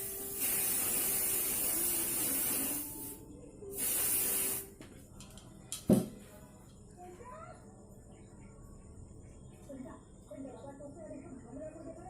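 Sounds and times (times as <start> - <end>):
spray can hissing: 0.0 - 4.7.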